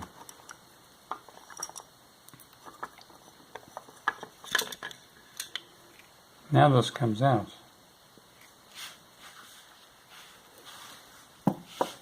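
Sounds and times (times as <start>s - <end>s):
small metal parts clinking: 0.1s - 5.6s.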